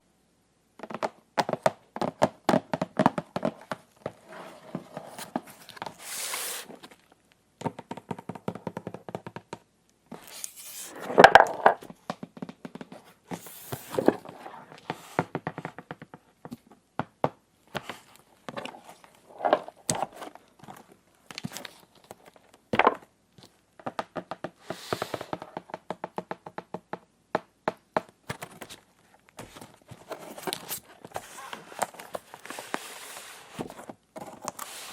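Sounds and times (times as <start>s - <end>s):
packaging rustling and tearing: 29.4s - 34.9s.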